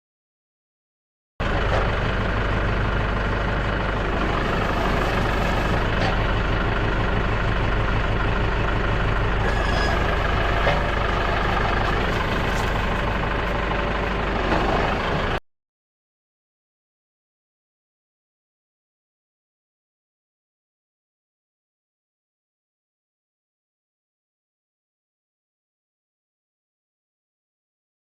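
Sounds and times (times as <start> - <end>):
engine running steadily: 1.4 - 15.4.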